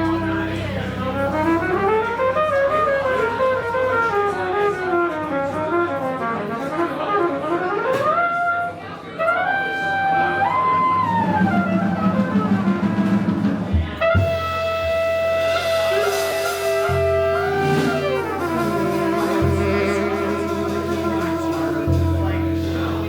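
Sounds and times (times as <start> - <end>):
jazz horn solo: 0.0 - 23.0
low accompaniment: 0.0 - 23.0.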